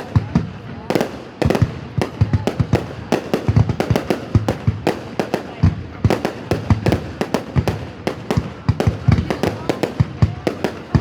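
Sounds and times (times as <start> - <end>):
fireworks bangs and booms: 0.0 - 11.0.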